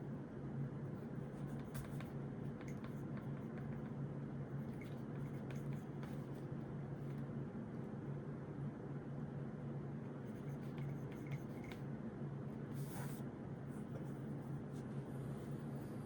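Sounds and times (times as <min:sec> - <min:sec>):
pen writing on paper: 0:01.0 - 0:06.5, 0:10.2 - 0:11.8.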